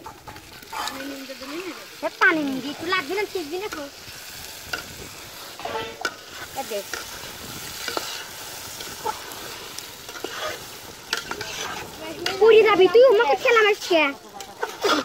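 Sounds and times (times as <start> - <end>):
food sizzling in oil: 0.0 - 15.0
steady hiss: 0.2 - 15.0
metal spoon scraping pot: 10.0 - 12.5.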